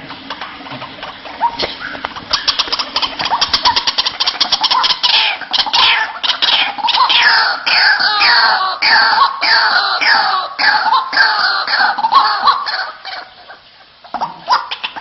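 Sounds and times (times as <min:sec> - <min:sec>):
bird harsh clicking notes: 0:00.1 - 0:09.3
bird croaking calls: 0:00.3 - 0:15.0.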